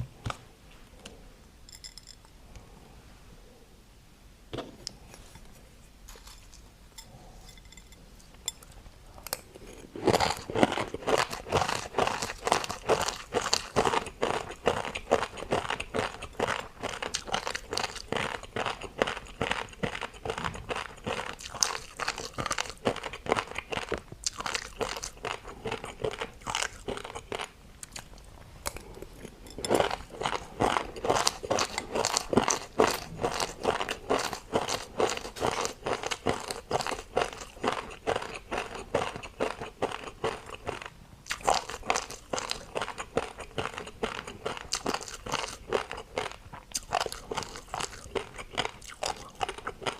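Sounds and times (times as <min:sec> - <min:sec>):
crunchy food being chewed: 0:08.3 - 0:49.9.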